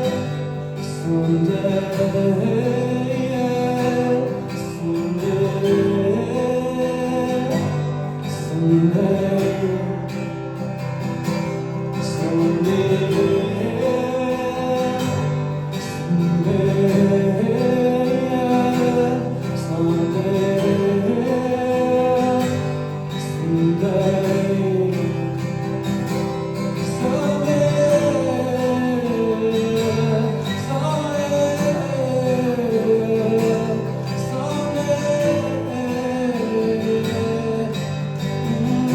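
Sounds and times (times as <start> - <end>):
acoustic guitar playing: 0.0 - 38.9
person singing: 26.8 - 38.9.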